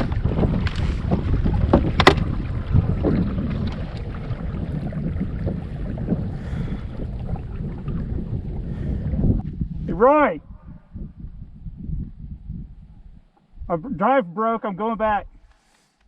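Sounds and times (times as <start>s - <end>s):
knocks and clicks from boat: 0.0s - 4.3s
wind buffeting microphone: 0.0s - 14.0s.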